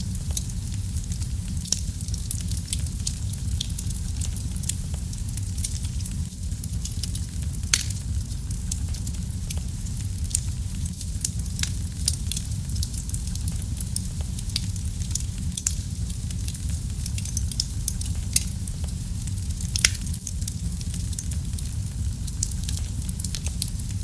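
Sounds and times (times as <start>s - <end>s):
wood fire burning: 0.0s - 24.0s.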